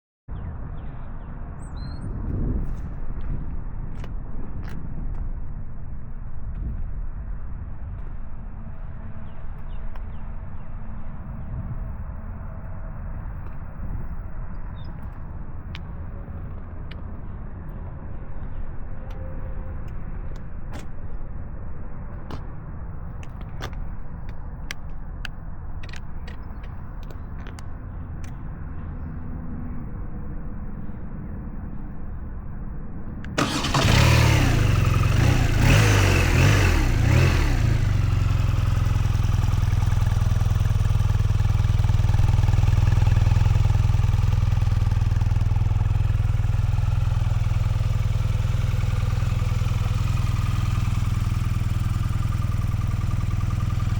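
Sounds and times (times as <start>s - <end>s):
motorcycle engine starting and idling: 33.3s - 53.9s.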